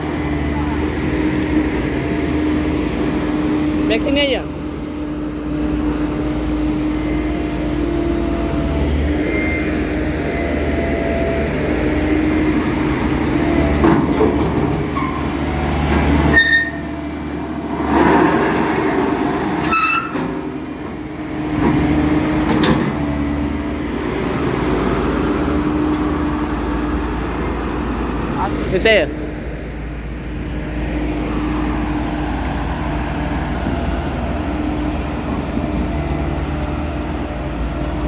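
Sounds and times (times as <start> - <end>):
diesel engine running: 0.0 - 38.0
metallic squeals and clanks: 13.9 - 17.0, 19.6 - 20.6.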